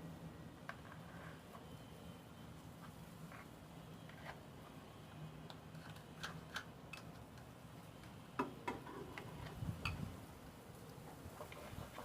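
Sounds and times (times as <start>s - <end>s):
light clicks and taps of containers: 5.4s - 10.0s.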